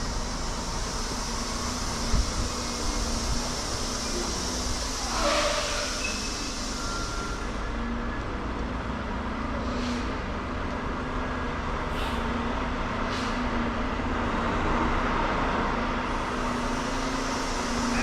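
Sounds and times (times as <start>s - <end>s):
faint short hisses: 0.9s - 7.6s, 11.9s - 12.3s.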